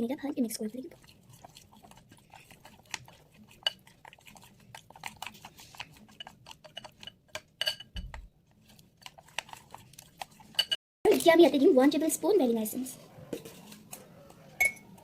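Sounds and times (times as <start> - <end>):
spoon clinking against bowl: 6.1 - 8.2, 10.6 - 10.8.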